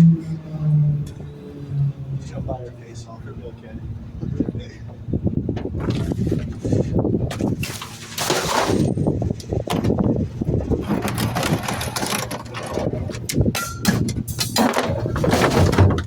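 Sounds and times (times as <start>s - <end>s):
garbage truck engine running: 0.0s - 16.0s
bins clattering and knocking: 5.5s - 16.0s.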